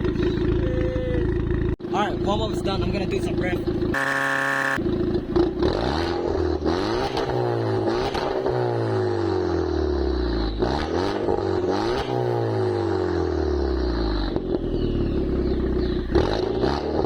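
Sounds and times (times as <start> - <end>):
car engine revving: 0.0 - 17.0
short steady tone: 4.0 - 4.8.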